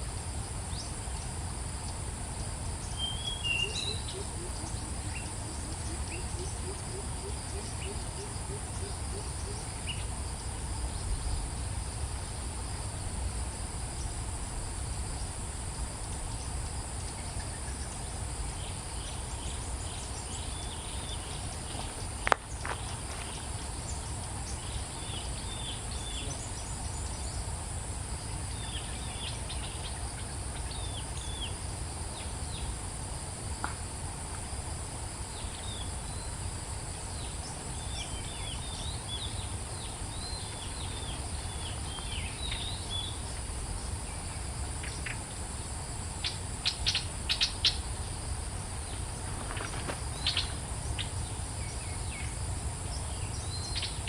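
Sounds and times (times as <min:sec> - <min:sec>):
insects droning: 0:00.0 - 0:54.0
small birds chirping: 0:48.8 - 0:52.3, 0:52.9 - 0:54.0.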